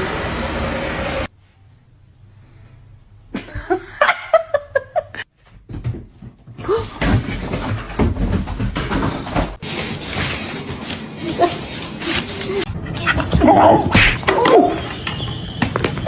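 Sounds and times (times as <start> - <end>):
person laughing: 3.4 - 5.2
rustling and thumping: 5.3 - 12.6.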